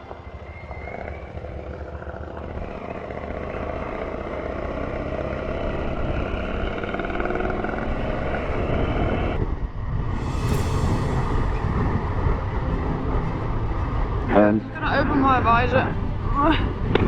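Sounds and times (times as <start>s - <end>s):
motorcycle engine accelerating: 0.1s - 10.8s.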